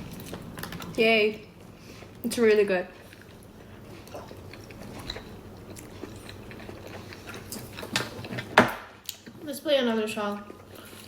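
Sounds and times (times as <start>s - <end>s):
chewing and mouth sounds: 2.9s - 9.4s.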